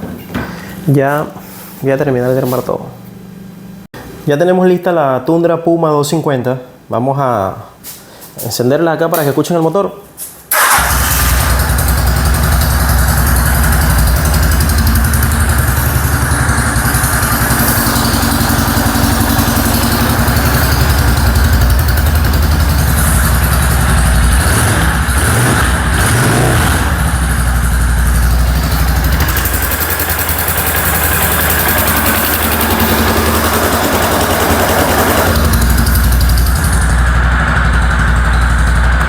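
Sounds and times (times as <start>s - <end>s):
motorcycle engine idling: 10.6s - 26.0s, 26.8s - 39.0s.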